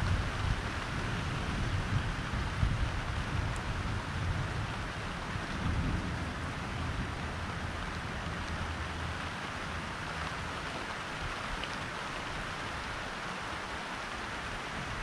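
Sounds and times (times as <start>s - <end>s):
low rumble of thunder: 0.0s - 9.1s
steady rain hissing: 0.0s - 15.0s.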